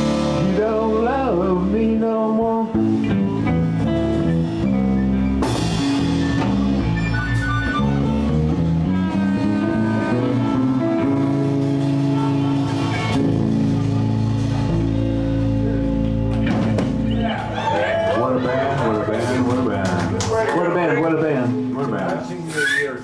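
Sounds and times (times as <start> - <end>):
electric guitar: 0.0 - 22.3
bass guitar: 0.0 - 23.0
drum kit: 0.0 - 23.0.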